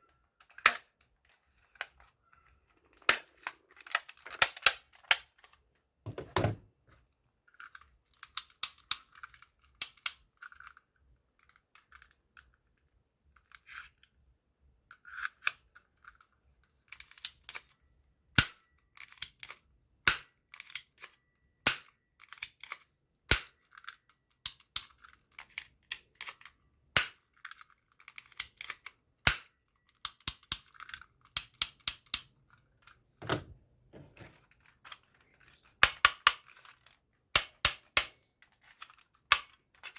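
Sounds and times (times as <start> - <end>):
toy gun plastic clicks: 0.4 - 2.1, 2.8 - 5.6, 7.6 - 10.8, 16.9 - 17.8, 18.4 - 33.0, 34.3 - 39.9.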